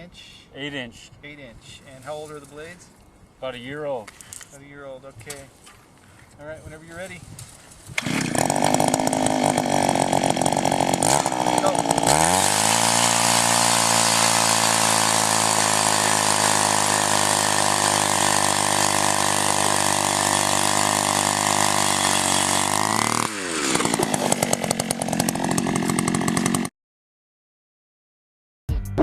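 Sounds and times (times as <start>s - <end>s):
ice auger engine drilling and idling: 7.9s - 26.7s.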